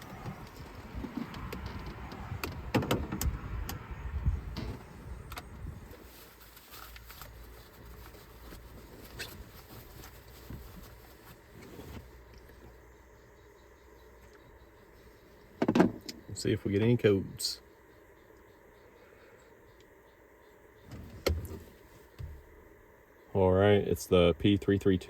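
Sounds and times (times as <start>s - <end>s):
sharp clicks and rustles: 0.0s - 12.8s
faint low hum: 0.0s - 25.0s.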